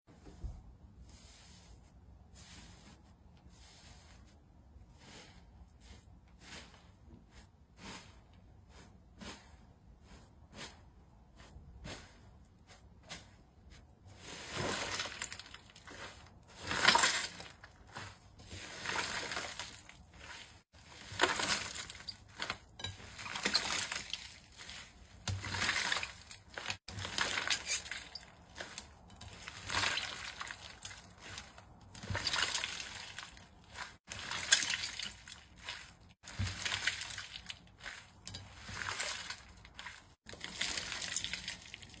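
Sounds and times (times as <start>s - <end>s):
slime squelching: 14.2s - 42.0s.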